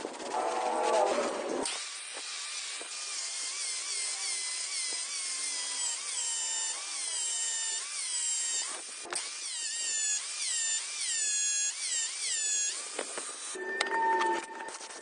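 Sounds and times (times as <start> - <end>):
electric power tool whining: 1.6 - 13.6.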